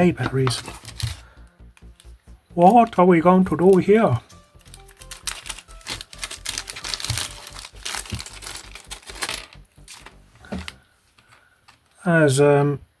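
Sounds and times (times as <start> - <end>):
packaging crinkling and rustling: 0.2 - 1.2, 3.6 - 12.0.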